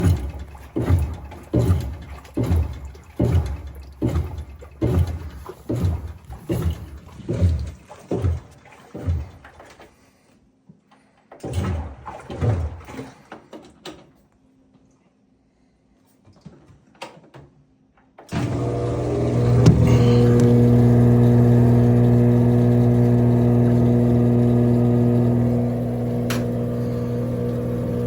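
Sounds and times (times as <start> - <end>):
washing machine drum turning: 0.0 - 9.6, 18.4 - 28.0
water sloshing: 0.0 - 10.3, 11.4 - 13.6.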